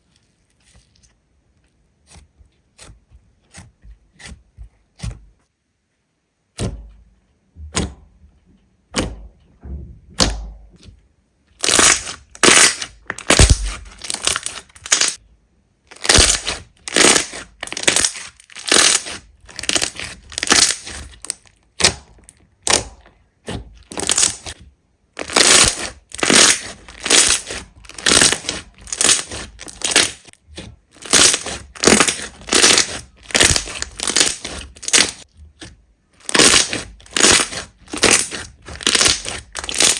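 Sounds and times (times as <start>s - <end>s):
slime crackling and popping: 11.6s - 15.2s, 15.9s - 23.1s, 23.8s - 24.6s, 25.2s - 30.3s, 30.9s - 35.3s, 36.2s - 39.9s.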